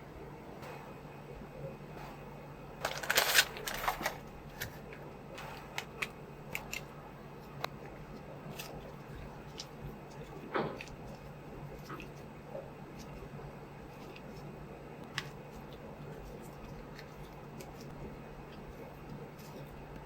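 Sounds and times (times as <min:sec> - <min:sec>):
plastic packaging rustling: 0:02.8 - 0:06.9.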